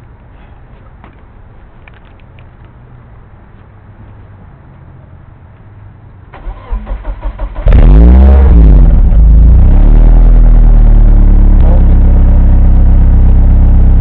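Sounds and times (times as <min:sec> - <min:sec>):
car engine starting and idling: 0:06.3 - 0:14.0.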